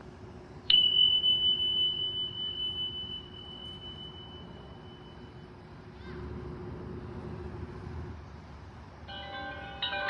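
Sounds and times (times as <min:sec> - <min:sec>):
faint low hum: 0:00.0 - 0:10.0
small bell ringing: 0:00.7 - 0:05.5, 0:09.1 - 0:10.0.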